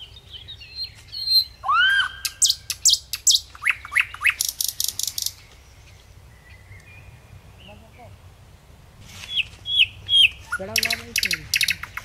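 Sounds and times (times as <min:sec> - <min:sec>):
bird whistle: 0:01.2 - 0:04.5
bird chirps and rattle: 0:09.3 - 0:12.0.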